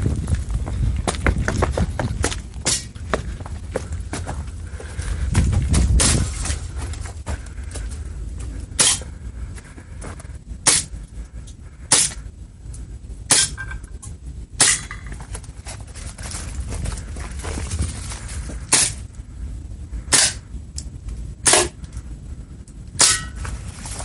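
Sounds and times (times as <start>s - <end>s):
steady low rumble: 0.0s - 24.0s
airsoft gun shots: 21.4s - 21.8s.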